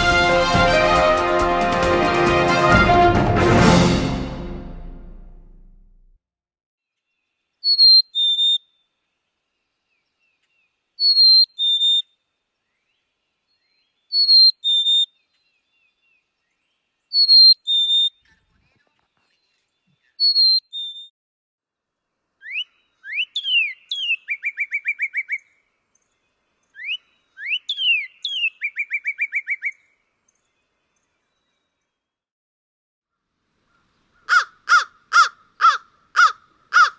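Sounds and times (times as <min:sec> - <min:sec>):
bird song with fast trill: 0:07.6 - 0:08.8, 0:22.4 - 0:25.4, 0:26.0 - 0:31.8.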